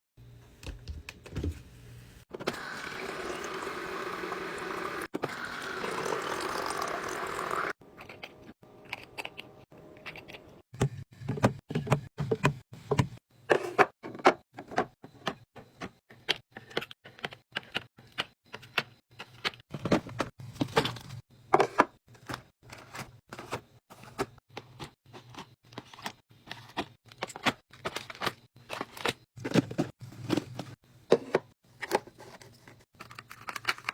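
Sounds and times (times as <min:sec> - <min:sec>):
containers clicking and clinking: 0:02.3 - 0:10.4.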